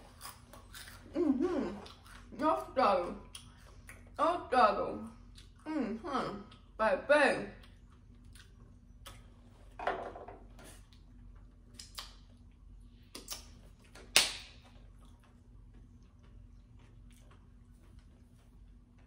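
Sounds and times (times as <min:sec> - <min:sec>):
person chewing with wet smacks: 0:00.0 - 0:02.4, 0:03.2 - 0:04.2, 0:05.2 - 0:05.7, 0:06.4 - 0:06.8, 0:07.6 - 0:09.5, 0:10.7 - 0:19.0
faint steady hum: 0:00.0 - 0:19.0.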